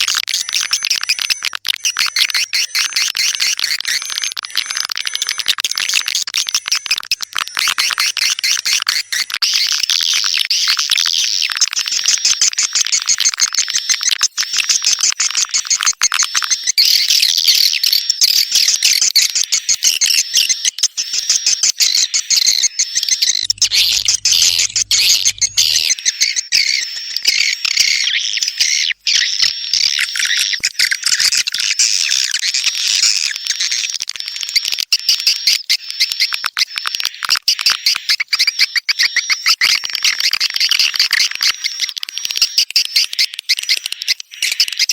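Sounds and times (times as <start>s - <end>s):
swiftlets chirping: 23.4s - 25.9s.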